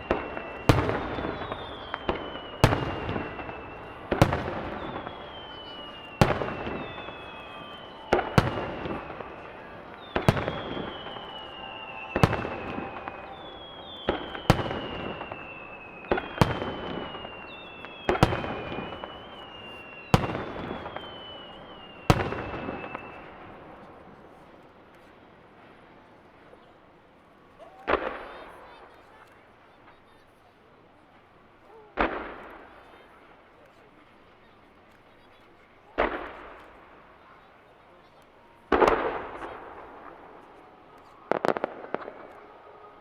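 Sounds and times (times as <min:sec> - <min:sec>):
firework shells booming: 0:00.0 - 0:23.8, 0:38.7 - 0:43.0
falling firework whistle: 0:00.0 - 0:24.0, 0:38.4 - 0:43.0
firework crackling: 0:00.0 - 0:26.5, 0:31.0 - 0:43.0.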